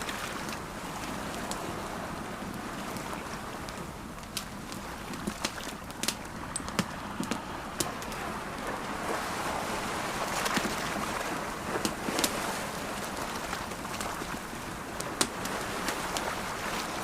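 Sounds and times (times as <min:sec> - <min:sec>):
ocean waves: 0:00.0 - 0:17.0
campfire crackling and popping: 0:02.4 - 0:08.7, 0:11.7 - 0:17.0.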